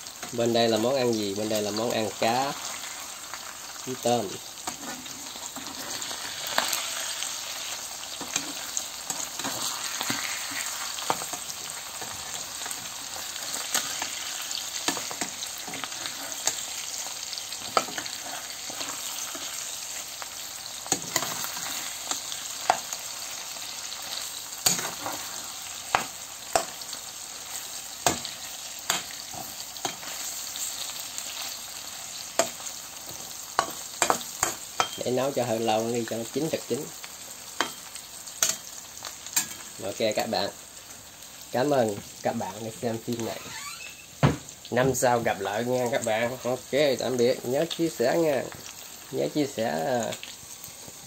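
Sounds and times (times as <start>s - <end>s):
food sizzling in hot oil: 0.0s - 51.0s
metal spatula scraping a pan: 4.4s - 20.2s, 20.8s - 35.1s.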